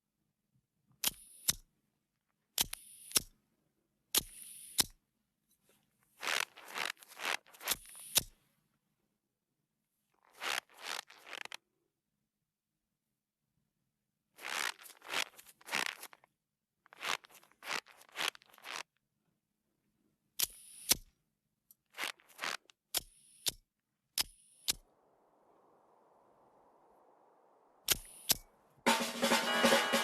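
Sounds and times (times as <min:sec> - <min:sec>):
faint steady hiss: 0:24.5 - 0:30.0.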